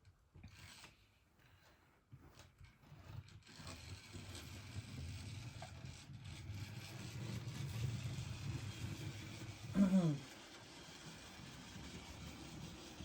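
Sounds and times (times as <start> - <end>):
model train running on track: 3.5 - 13.0.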